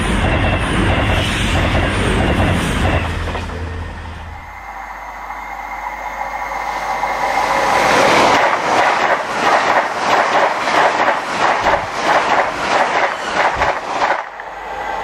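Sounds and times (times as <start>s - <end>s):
ringing tone from rails: 0.0s - 9.3s
express train passing: 0.0s - 15.0s.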